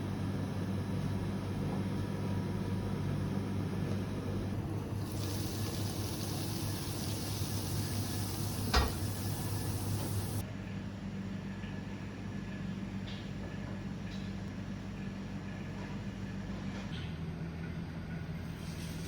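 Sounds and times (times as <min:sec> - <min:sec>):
low machine hum: 0:00.0 - 0:19.0
hiss: 0:04.9 - 0:10.4.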